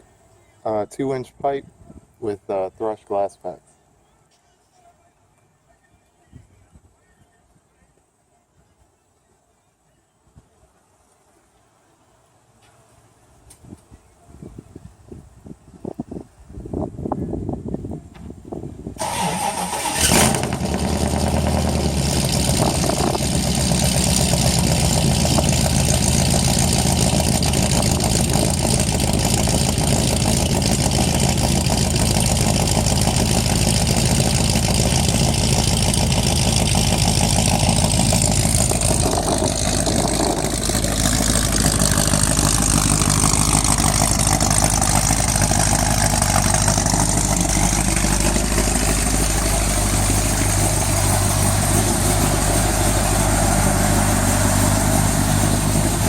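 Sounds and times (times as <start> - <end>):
engine starting: 19.0 - 21.4
engine exhaust idling: 19.0 - 56.0.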